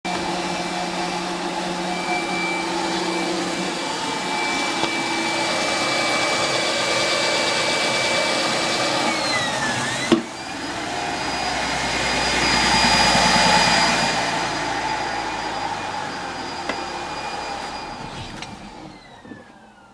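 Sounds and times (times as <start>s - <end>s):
mechanical whine: 9.2s - 19.9s.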